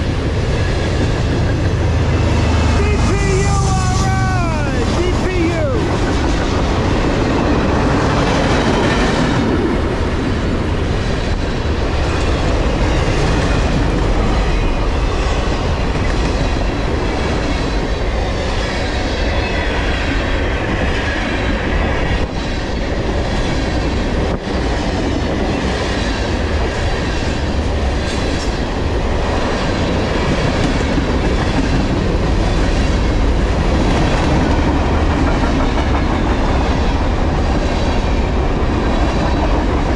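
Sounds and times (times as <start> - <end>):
freight train rolling past: 0.0 - 39.9
wheels clacking over rail joints: 29.2 - 39.9.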